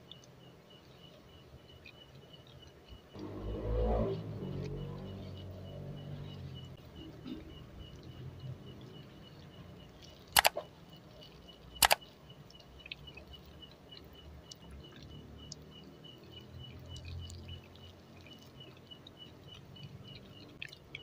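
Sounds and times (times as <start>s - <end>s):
chewing sounds: 7.0s - 21.0s
sharp double clicks: 10.4s - 10.6s, 11.8s - 12.1s.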